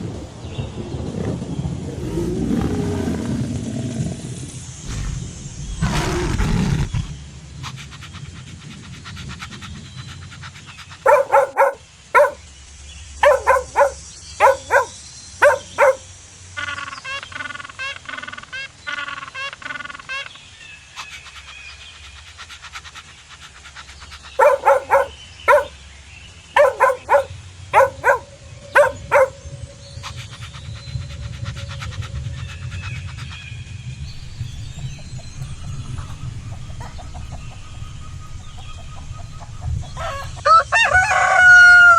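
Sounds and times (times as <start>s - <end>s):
dog barking: 11.0s - 12.4s, 13.2s - 16.1s, 24.4s - 25.8s, 26.6s - 29.4s, 34.3s - 40.6s.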